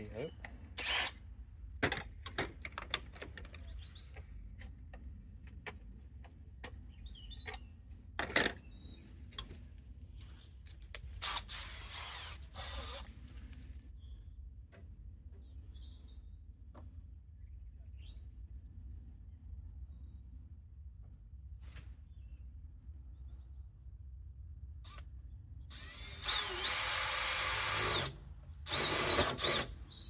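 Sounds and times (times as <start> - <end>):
faint birds chirping: 2.9 - 10.6, 12.5 - 20.7.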